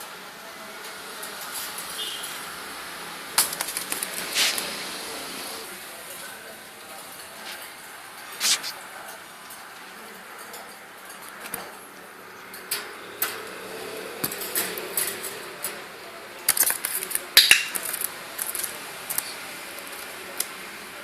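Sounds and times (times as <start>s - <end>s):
hard objects knocking together: 16.5s - 19.2s.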